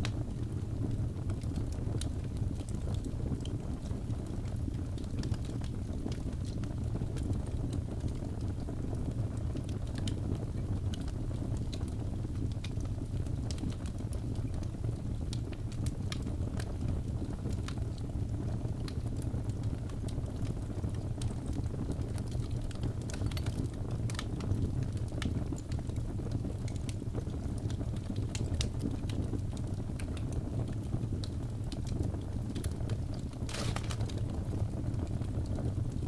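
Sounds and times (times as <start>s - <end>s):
fire crackling and popping: 0.0s - 36.0s.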